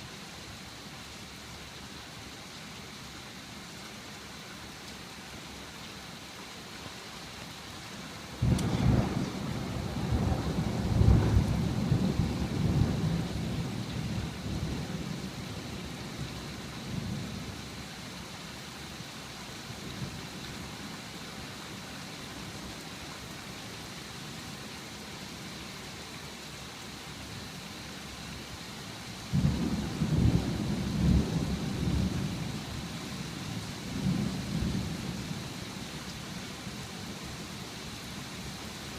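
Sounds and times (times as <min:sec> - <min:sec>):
steady rain: 0:00.0 - 0:38.9
rolling thunder: 0:08.4 - 0:13.6.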